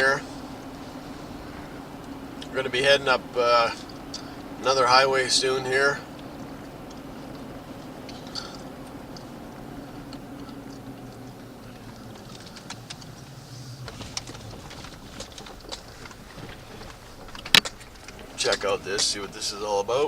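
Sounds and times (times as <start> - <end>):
truck engine hum: 0.0 - 20.0
light clicks and ticks: 3.7 - 19.8.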